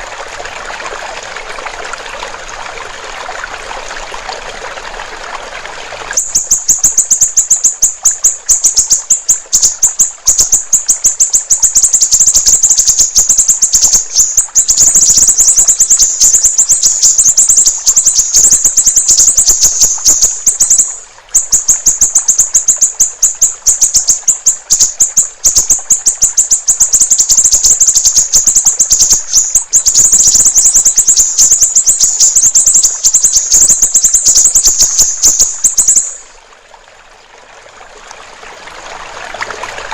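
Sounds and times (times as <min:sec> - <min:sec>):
water trickling: 0:00.0 - 0:39.9
bird chirping rapidly: 0:06.2 - 0:36.3.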